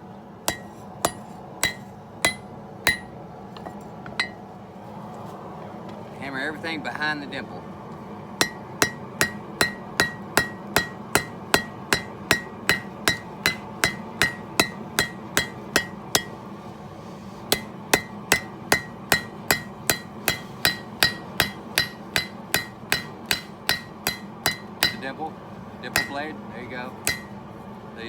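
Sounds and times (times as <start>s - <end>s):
hammer striking steel on anvil: 0.5s - 3.2s, 8.4s - 16.5s, 17.5s - 25.2s, 25.9s - 26.4s, 27.0s - 27.4s.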